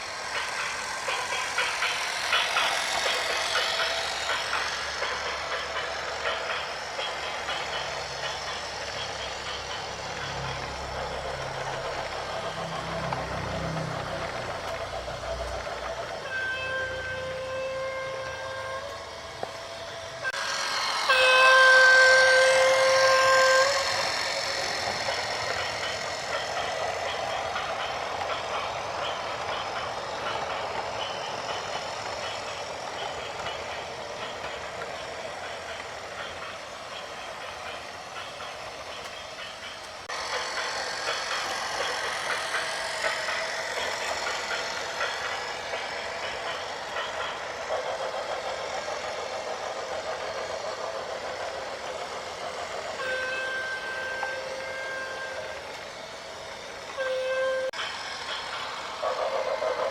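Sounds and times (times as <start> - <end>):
vehicle and road noise: 9.9 - 16.2.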